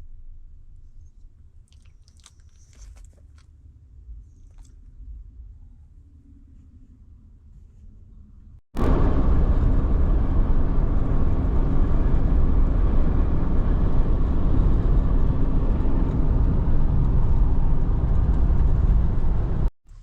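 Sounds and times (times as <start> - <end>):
car road and wind noise: 8.8 - 19.7.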